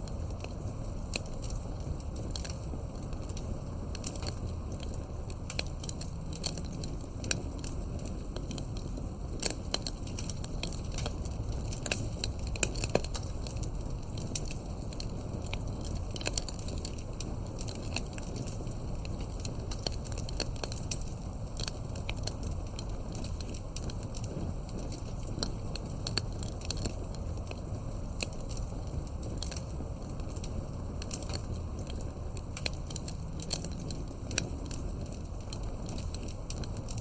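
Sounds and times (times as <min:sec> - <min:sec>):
campfire crackling and popping: 0:00.0 - 0:37.0
low rumble of flame: 0:00.0 - 0:37.0.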